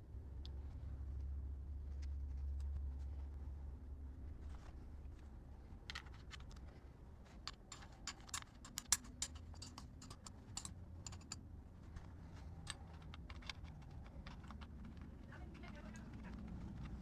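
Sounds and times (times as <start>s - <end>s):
hand tools clicking and tapping: 7.5s - 11.4s, 12.6s - 15.1s.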